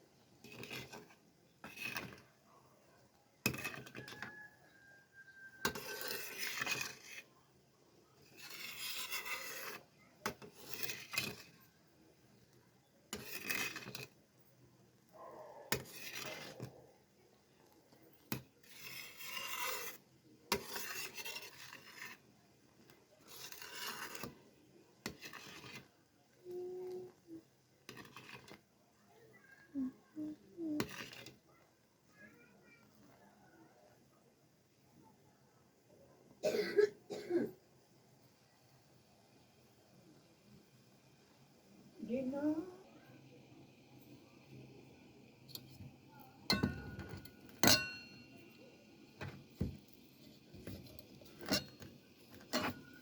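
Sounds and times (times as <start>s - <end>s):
kitchen utensil scraping: 0.4s - 2.3s, 3.4s - 7.3s, 8.2s - 11.6s, 13.1s - 14.2s, 15.7s - 16.8s, 18.3s - 22.3s, 23.2s - 24.4s, 25.0s - 25.9s, 27.9s - 28.6s, 30.8s - 31.4s, 45.5s - 48.6s, 49.2s - 53.0s.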